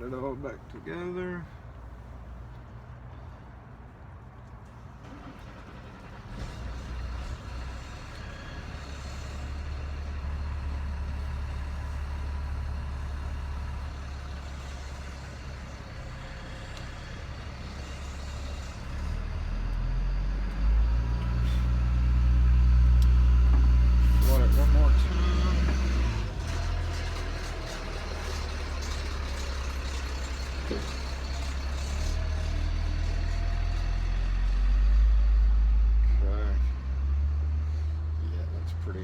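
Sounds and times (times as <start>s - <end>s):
vehicle engine humming: 0.0s - 39.0s.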